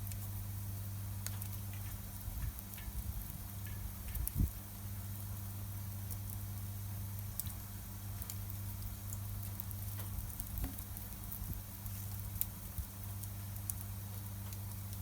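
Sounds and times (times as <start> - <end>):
campfire crackling and popping: 8.2 - 15.0.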